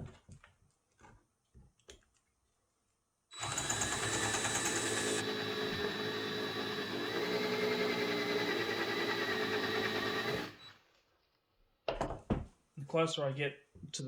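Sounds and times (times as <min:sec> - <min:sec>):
electric drill running: 0:03.3 - 0:10.8.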